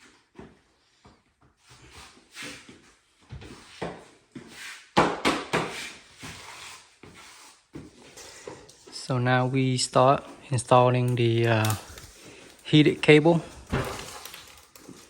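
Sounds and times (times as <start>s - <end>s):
plastic membrane scraping and rustling: 8.9s - 15.0s.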